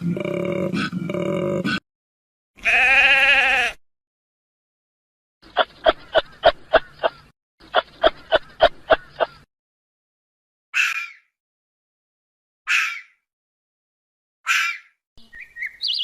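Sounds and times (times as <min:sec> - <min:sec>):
animal bleating call: 0:02.6 - 0:03.8.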